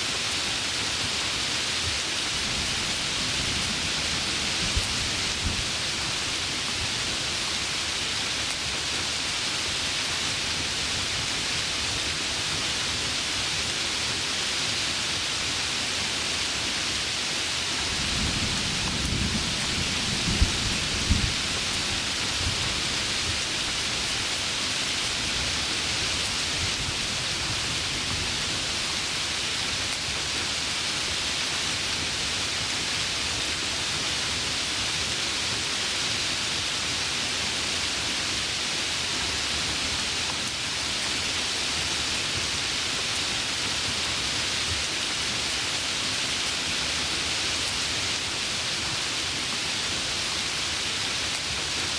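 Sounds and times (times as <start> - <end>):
heavy rain: 0.0 - 51.9
thunder rumbling and cracking: 18.0 - 21.7.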